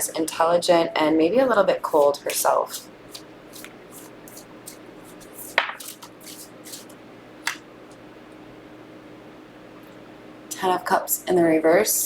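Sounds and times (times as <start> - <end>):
faint room hum: 0.0 - 12.0
cards swishing: 1.9 - 7.6
card snaps: 5.4 - 7.6.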